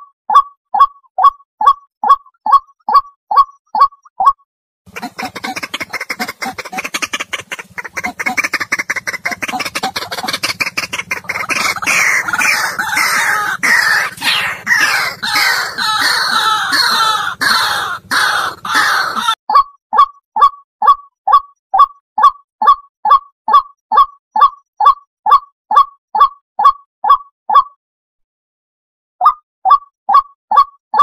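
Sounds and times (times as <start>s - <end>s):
waterhen clucking and croaking: 0.4s - 27.7s
steady low hum: 4.9s - 19.3s.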